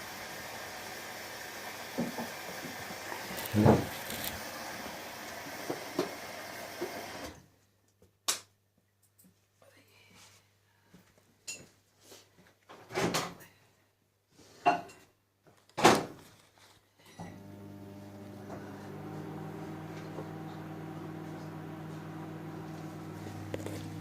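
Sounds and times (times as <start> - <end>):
washing machine humming: 0.0 - 7.4, 17.2 - 24.0.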